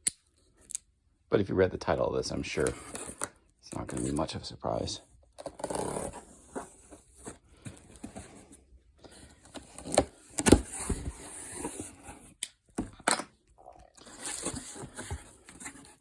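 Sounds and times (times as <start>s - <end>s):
packaging scraping and rustling: 14.0s - 16.0s.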